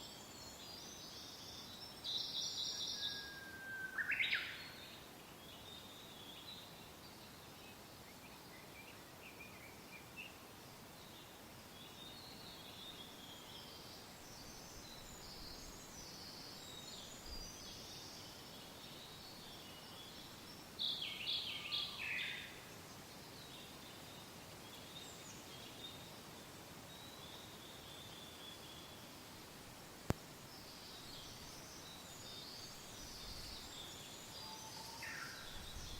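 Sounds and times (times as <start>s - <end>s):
soft steady wind: 0.0s - 35.9s.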